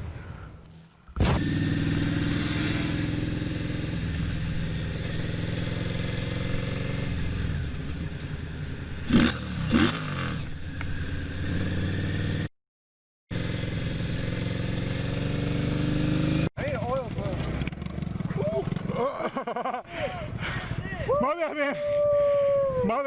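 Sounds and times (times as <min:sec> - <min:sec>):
motorcycle engine running: 0:01.3 - 0:12.5, 0:13.3 - 0:19.1.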